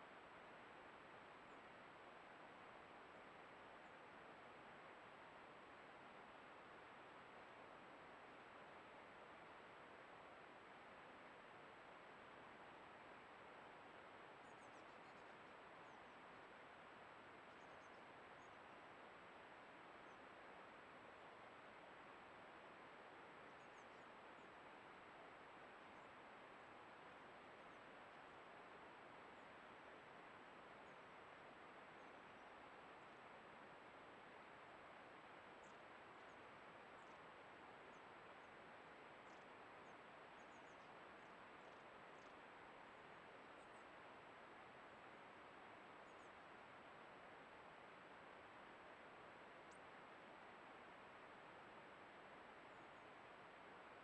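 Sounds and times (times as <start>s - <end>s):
small birds chirping: 39.2s - 42.4s.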